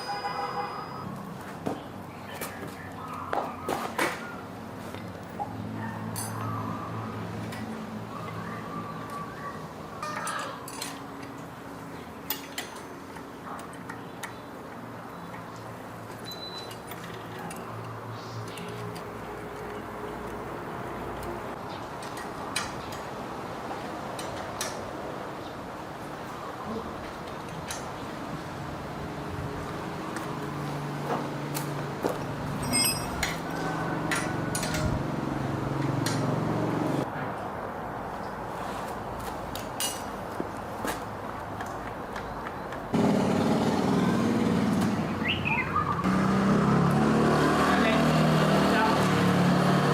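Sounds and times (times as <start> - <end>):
metal tools clinking and knocking: 6.1 - 6.5, 10.0 - 11.4, 12.2 - 14.0, 32.5 - 33.5
metallic clinks and taps: 32.6 - 33.4
short metallic ring: 32.6 - 33.4.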